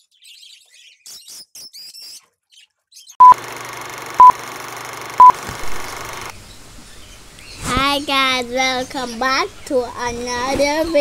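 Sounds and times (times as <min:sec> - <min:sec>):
caged birds chirping: 0:00.0 - 0:03.3, 0:05.2 - 0:11.0
short loud beeps: 0:03.2 - 0:03.4.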